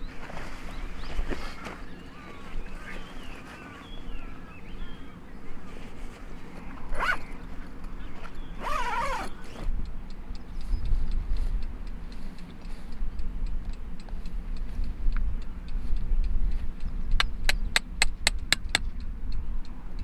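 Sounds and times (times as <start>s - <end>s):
faint chirping: 0.0s - 12.9s.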